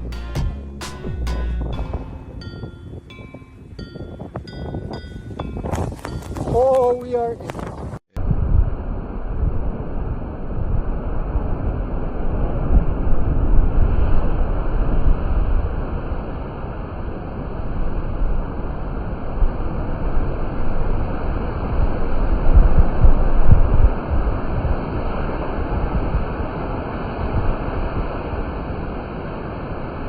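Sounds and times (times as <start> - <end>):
low rushing roar: 0.0 - 5.6
wind buffeting microphone: 2.3 - 16.3, 21.7 - 28.9.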